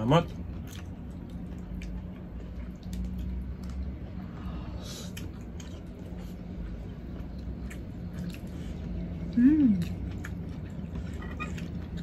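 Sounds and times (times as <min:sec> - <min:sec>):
steady low hum: 0:00.0 - 0:12.0
chewing and wet mouth clicks: 0:00.3 - 0:04.0, 0:05.1 - 0:08.6, 0:09.7 - 0:12.0.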